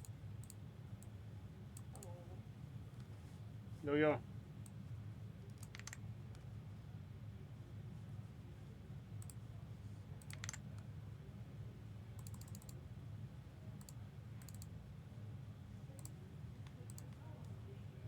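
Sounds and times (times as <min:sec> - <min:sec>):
faint scattered clicks: 0:00.0 - 0:01.2, 0:01.8 - 0:02.1, 0:05.5 - 0:06.5, 0:09.2 - 0:09.4, 0:10.2 - 0:10.9, 0:12.2 - 0:12.8, 0:13.8 - 0:14.7, 0:16.0 - 0:17.6.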